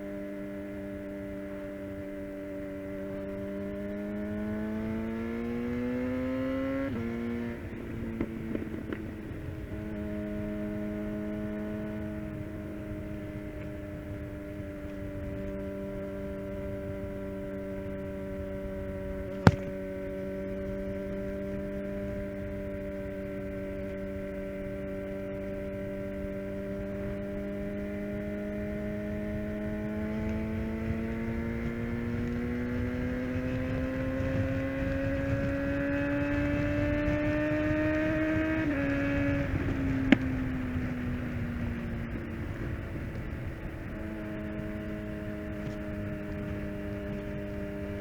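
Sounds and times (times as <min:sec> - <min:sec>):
constant low rush: 0:00.0 - 0:48.0
motorcycle engine revving: 0:00.0 - 0:48.0
single sharp crack: 0:19.4 - 0:19.8.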